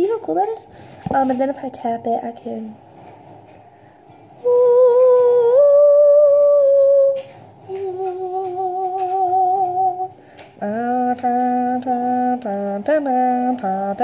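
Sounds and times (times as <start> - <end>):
person humming: 4.4 - 13.9.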